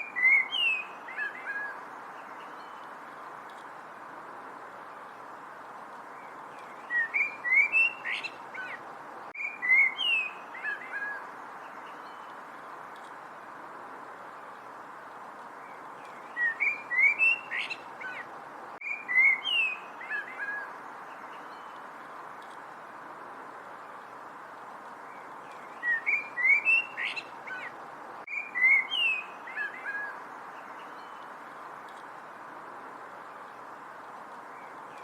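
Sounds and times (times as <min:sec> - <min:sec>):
songbird whistling: 0:00.0 - 0:01.8, 0:06.8 - 0:08.8, 0:09.4 - 0:11.2, 0:16.3 - 0:18.2, 0:18.8 - 0:20.7, 0:25.7 - 0:27.7, 0:28.3 - 0:30.2
background hiss: 0:00.0 - 0:35.0.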